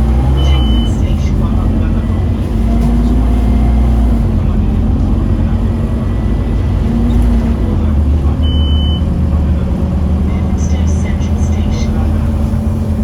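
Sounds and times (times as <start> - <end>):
bus diesel engine drone: 0.0 - 13.0
short high beep: 0.4 - 1.0, 8.4 - 9.0.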